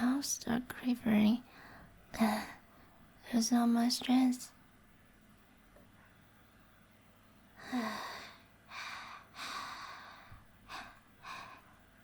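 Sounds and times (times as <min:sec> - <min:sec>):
breathy sighs and heavy breaths: 0:07.6 - 0:11.8
woman gasping: 0:07.6 - 0:11.8.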